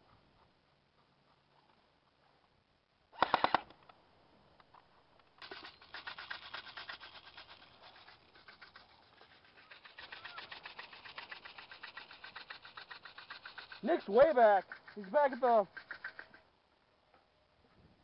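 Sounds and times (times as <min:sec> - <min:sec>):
airsoft rifles firing full auto: 0:03.2 - 0:03.8.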